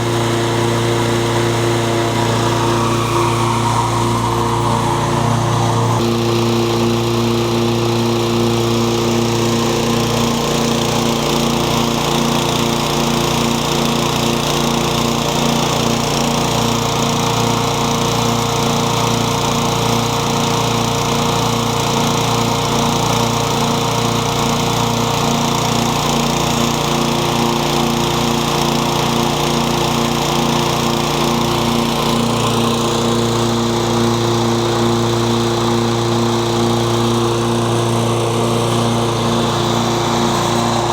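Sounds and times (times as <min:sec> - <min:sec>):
lawn mower engine running: 0:00.0 - 0:40.9.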